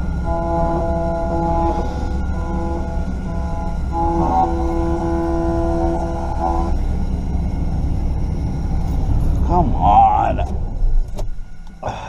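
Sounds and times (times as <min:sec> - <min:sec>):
train horn blasts: 0:00.0 - 0:07.6
low rumble: 0:00.0 - 0:12.0.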